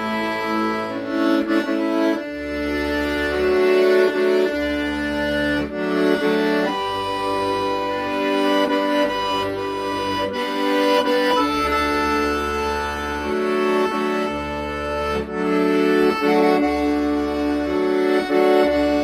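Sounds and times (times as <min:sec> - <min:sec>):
accordion bass notes: 0:00.0 - 0:19.0
accordion melody over chords: 0:00.0 - 0:19.0.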